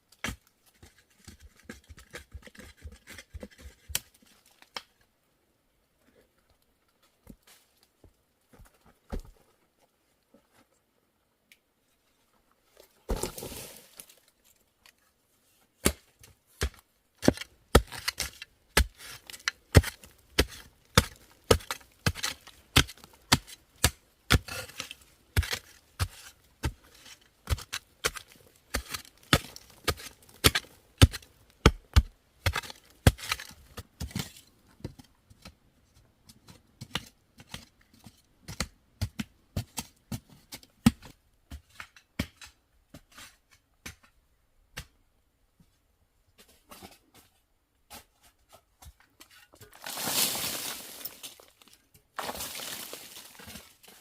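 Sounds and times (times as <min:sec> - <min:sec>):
scraping rustle: 0:49.2 - 0:54.0.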